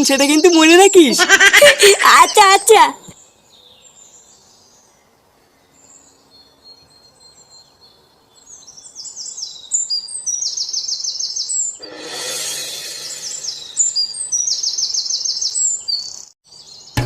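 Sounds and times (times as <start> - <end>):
birds chirping: 0.0 - 17.0
rush of noise: 11.8 - 14.0.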